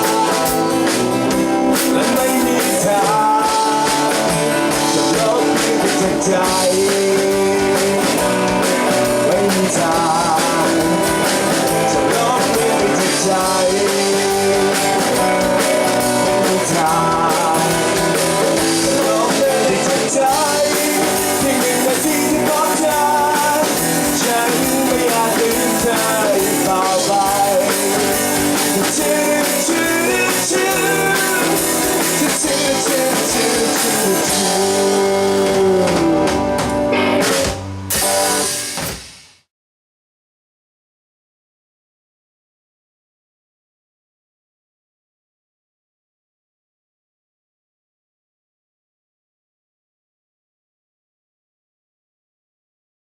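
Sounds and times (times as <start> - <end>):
bass guitar: 0.0 - 39.1
electric guitar: 0.0 - 39.1
rock band playing: 0.0 - 39.3
drum kit: 0.0 - 39.5.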